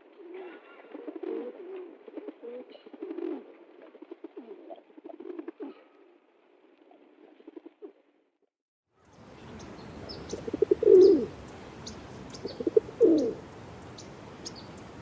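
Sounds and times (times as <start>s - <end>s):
pigeons cooing: 0.0s - 6.2s, 9.5s - 14.9s.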